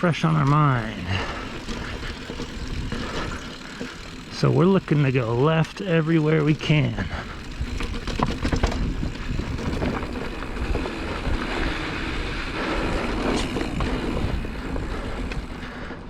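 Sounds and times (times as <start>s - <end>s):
bike knocking and rattling: 0.0s - 16.0s
tyres rumbling over dirt: 0.0s - 16.0s
wind on microphone: 7.4s - 12.3s.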